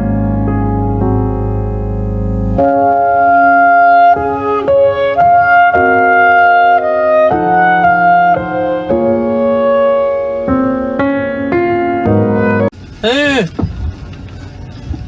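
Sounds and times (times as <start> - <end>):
keyboard music: 0.0 - 12.8.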